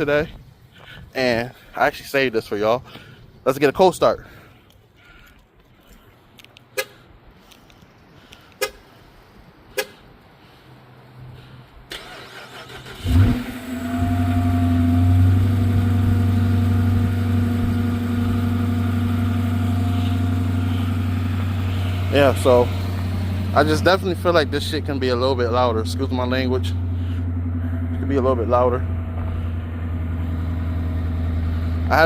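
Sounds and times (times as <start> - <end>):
car engine cold-starting and idling: 11.9 - 32.0.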